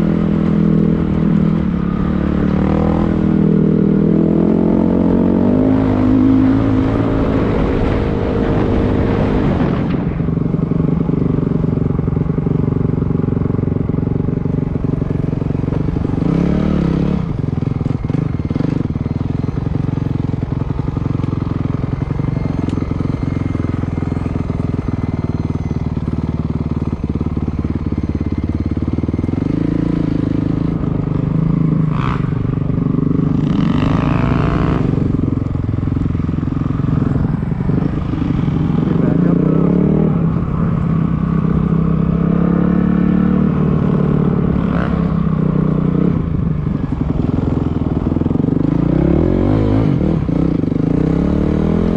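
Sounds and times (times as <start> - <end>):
dirt bike engine revving: 28.0 - 35.4, 36.2 - 51.9.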